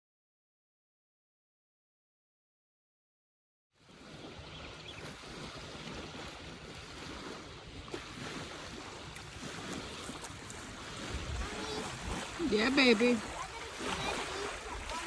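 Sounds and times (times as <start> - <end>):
water washing at shore: 3.8 - 15.0
wind rumbling on microphone: 3.9 - 15.0.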